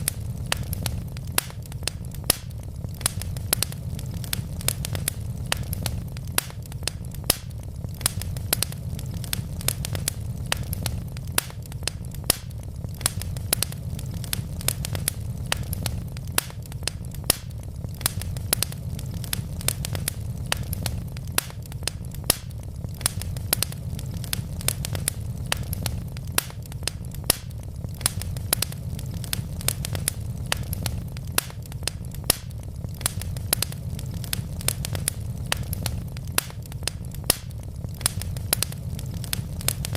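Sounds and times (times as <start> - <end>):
low rumble: 0.0 - 39.9
wood fire crackling: 0.0 - 39.9.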